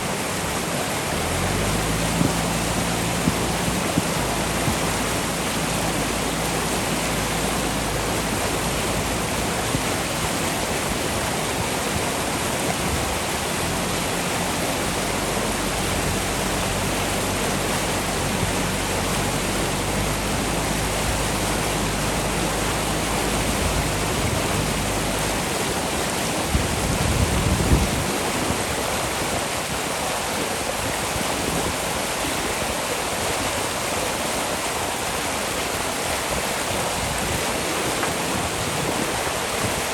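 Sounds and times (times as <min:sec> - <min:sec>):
diesel engine running: 0:00.0 - 0:27.9
river rushing: 0:00.0 - 0:39.9.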